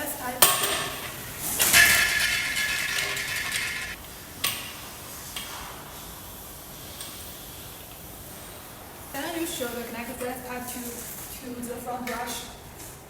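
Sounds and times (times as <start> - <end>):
vacuum tube scraping and rattling: 0.6 - 4.0.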